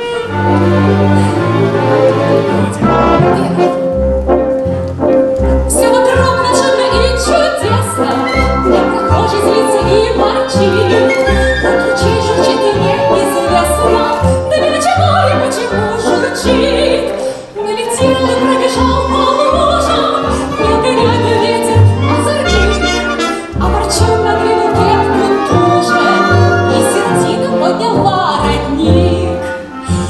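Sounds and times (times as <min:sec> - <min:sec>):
bass notes pulsing: 0:00.6 - 0:17.1
operatic singing: 0:05.6 - 0:30.0.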